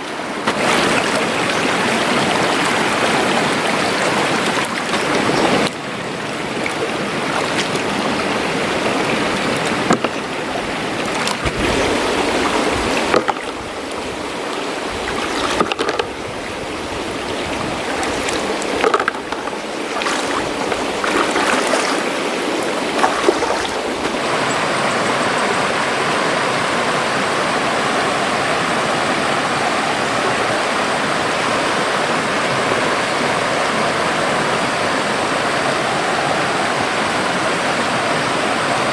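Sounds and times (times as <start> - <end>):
river water running: 0.0 - 38.9
short knocks and splashes: 0.4 - 1.6, 8.8 - 10.4, 11.0 - 13.7, 15.0 - 16.3, 17.4 - 24.2.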